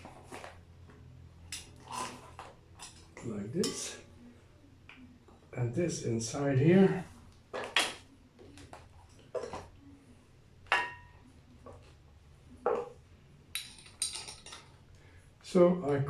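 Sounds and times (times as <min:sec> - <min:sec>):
hand tool clinking on metal: 0:13.5 - 0:14.7.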